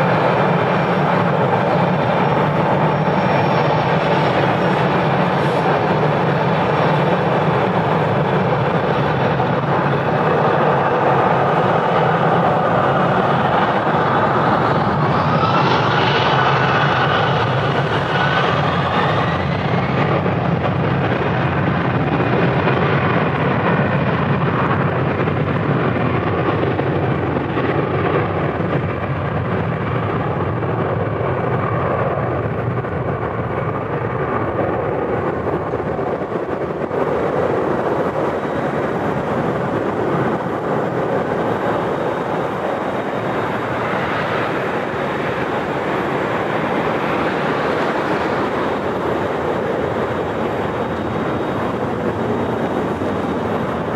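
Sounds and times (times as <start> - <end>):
jet engines at takeoff power: 0.0 - 53.9.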